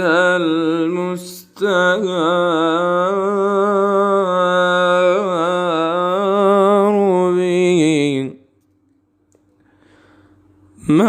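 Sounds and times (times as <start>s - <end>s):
man singing unaccompanied: 0.0s - 8.5s, 10.8s - 11.0s
audible breath: 9.6s - 10.7s.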